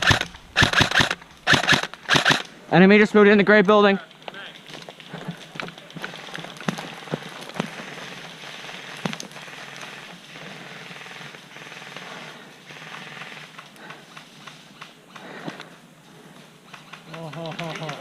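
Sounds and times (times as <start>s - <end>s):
airsoft gun cracks: 0.0s - 2.5s
rustling and crackling: 0.0s - 18.0s.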